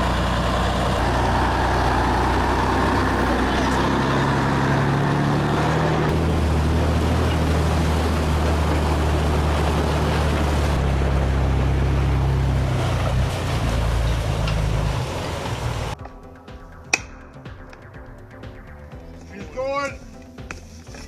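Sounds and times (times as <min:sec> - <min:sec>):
heavy diesel truck engine: 0:00.0 - 0:16.0.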